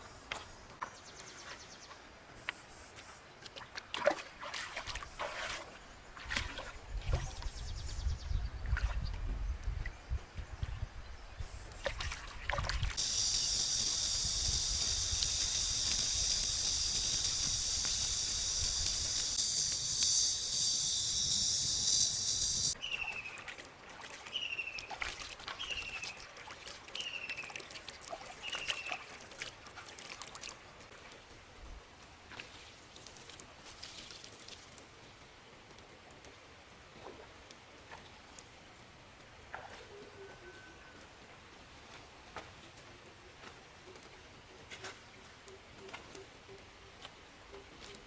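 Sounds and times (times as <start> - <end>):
trickling water: 11.7 - 31.6, 32.2 - 39.7
forest ambience: 12.9 - 29.2.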